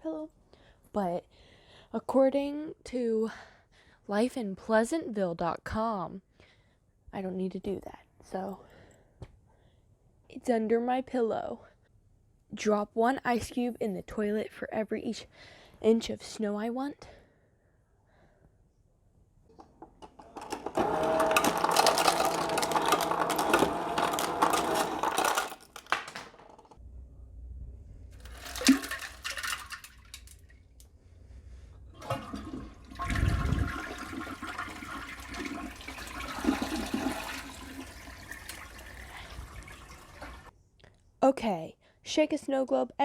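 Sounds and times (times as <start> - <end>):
toilet flushing: 20.5 - 25.6, 28.2 - 30.4, 32.0 - 40.5.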